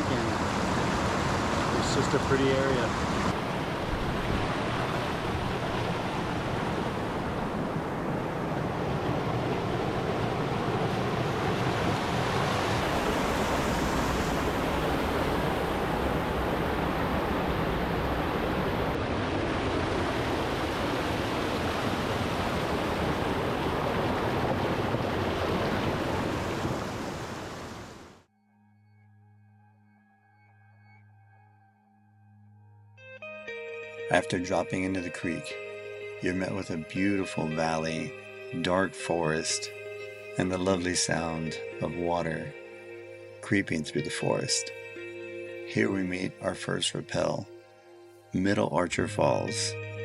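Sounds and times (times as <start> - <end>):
creek water rushing over rocks: 0.0 - 28.0.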